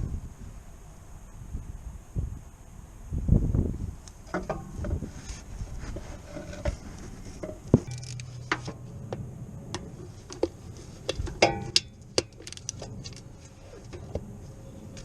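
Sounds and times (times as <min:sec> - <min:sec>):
metal tools clinking: 0:07.8 - 0:08.7.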